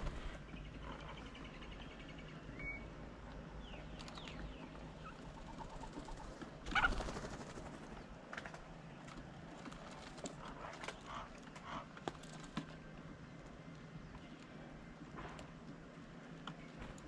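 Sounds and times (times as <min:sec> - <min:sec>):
birds chirping and whistling: 0:00.0 - 0:03.0.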